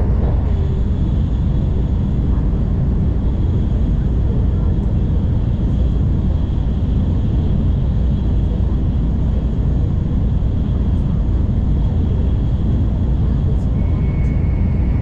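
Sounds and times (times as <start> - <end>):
train cabin rumble: 0.0 - 15.0
faint high whine: 13.6 - 15.0.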